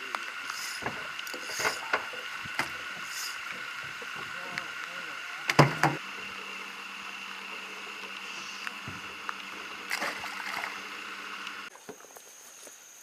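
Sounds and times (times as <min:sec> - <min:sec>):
steady hum: 0:00.0 - 0:11.7
sharp knocks on a boat: 0:05.5 - 0:06.0.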